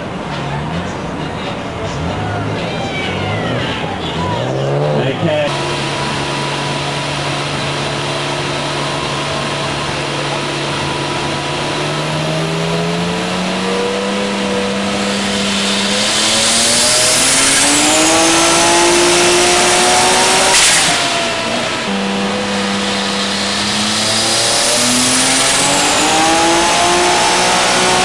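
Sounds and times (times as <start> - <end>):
car engine revving on dyno: 1.9 - 28.0
loud turbo hiss: 14.2 - 19.7, 20.5 - 27.2.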